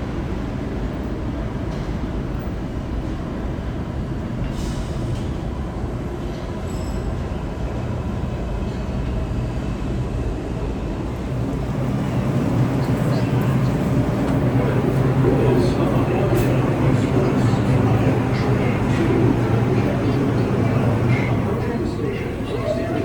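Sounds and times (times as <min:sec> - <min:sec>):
subway train rumbling on rails: 0:00.0 - 0:23.0.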